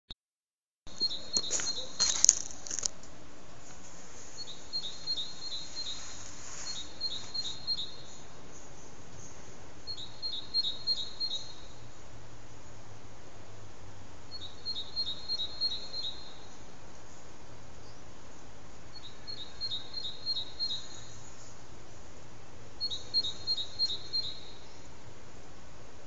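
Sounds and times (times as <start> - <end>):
songbird calling: 0.9 - 2.6, 4.3 - 12.1, 14.3 - 22.2, 22.8 - 25.0.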